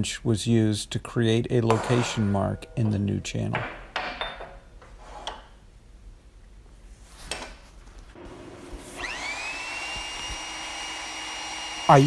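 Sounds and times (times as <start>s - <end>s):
drill motor whining: 8.8s - 12.0s.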